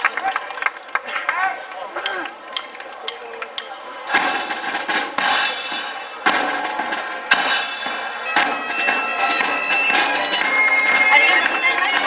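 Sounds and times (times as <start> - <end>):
drum beat: 4.1 - 12.0
reedy wind instrument tones: 4.1 - 12.0.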